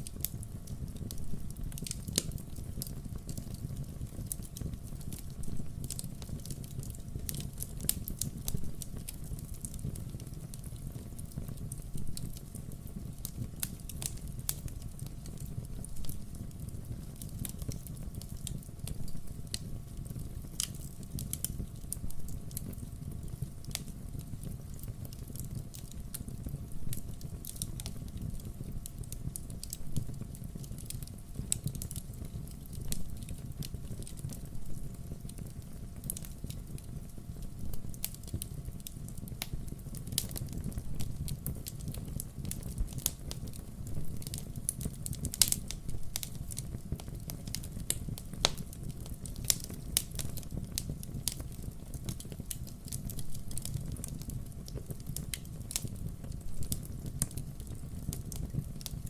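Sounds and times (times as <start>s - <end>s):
firewood crackling and popping: 0.0s - 59.0s.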